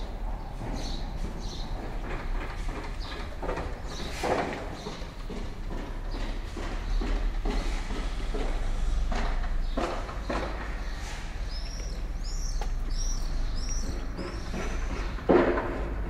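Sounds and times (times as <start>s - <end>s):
low city hum: 0.0s - 16.0s
footsteps on pavement: 0.1s - 16.0s
small bird chirping: 9.6s - 15.2s.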